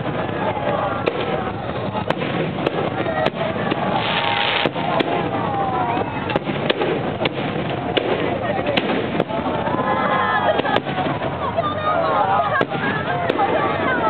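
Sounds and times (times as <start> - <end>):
crowd chatter: 0.0 - 14.0
hissing crackle of fireworks: 0.0 - 14.0
firework shells bursting: 1.0 - 5.5.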